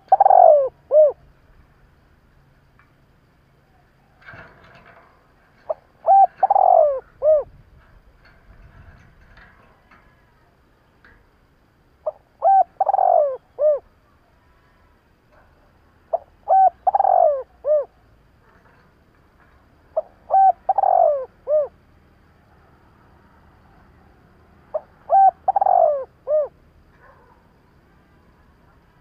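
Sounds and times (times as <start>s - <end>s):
dove cooing: 0.0s - 1.2s, 5.6s - 7.6s, 12.0s - 13.9s, 16.1s - 18.0s, 19.9s - 21.8s, 24.7s - 27.3s.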